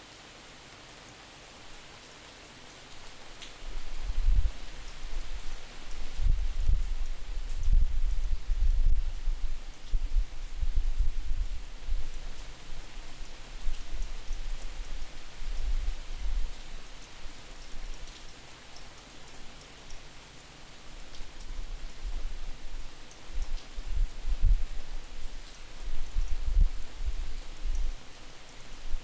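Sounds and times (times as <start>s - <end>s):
steady rain falling: 0.0s - 29.0s
wind buffeting microphone: 3.8s - 12.1s, 25.9s - 27.9s.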